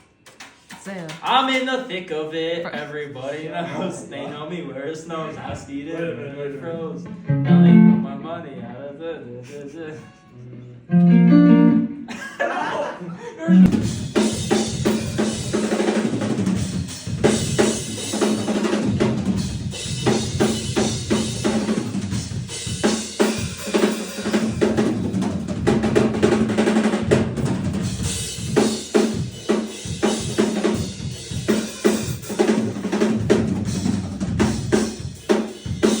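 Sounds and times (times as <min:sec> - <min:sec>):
held low note: 0:07.1 - 0:08.5, 0:10.8 - 0:12.0, 0:13.5 - 0:14.0
drum kit groove: 0:13.5 - 0:36.0.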